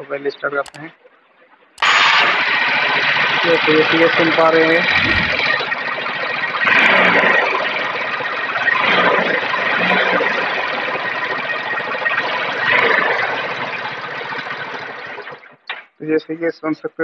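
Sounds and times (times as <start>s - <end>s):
valve ticking: 0.7s - 0.9s.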